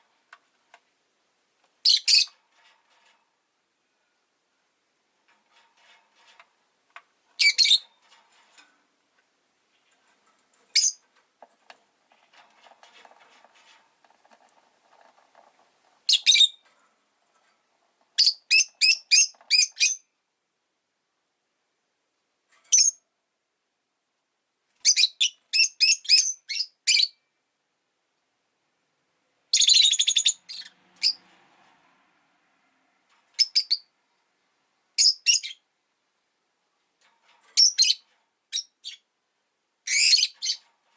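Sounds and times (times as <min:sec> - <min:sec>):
lovebird high-pitched chirps: 0:01.8 - 0:02.3, 0:07.4 - 0:07.9, 0:10.7 - 0:11.0, 0:16.1 - 0:16.6, 0:18.2 - 0:20.1, 0:22.7 - 0:23.0, 0:24.8 - 0:27.2, 0:29.5 - 0:31.2, 0:33.4 - 0:33.9, 0:35.0 - 0:35.7, 0:37.6 - 0:39.1, 0:39.8 - 0:40.6
soft bird chatter: 0:29.5 - 0:31.2.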